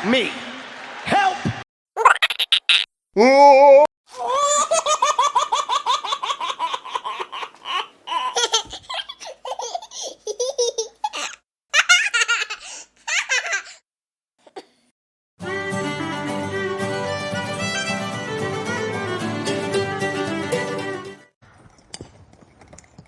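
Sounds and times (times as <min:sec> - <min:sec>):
high-pitched laughter: 0:02.0 - 0:02.9.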